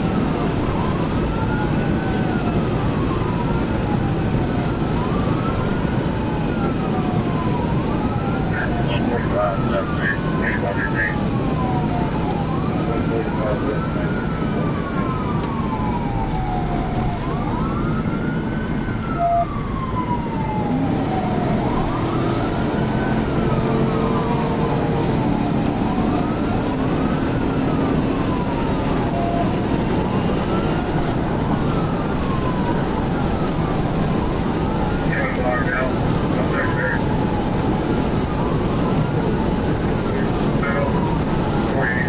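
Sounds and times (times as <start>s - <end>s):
engine and road noise: 0.0s - 42.0s
police siren wailing: 0.0s - 42.0s.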